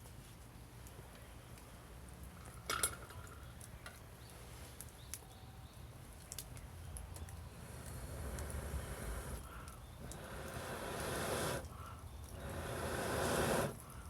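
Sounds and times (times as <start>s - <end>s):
wood fire crackling: 6.1s - 14.0s.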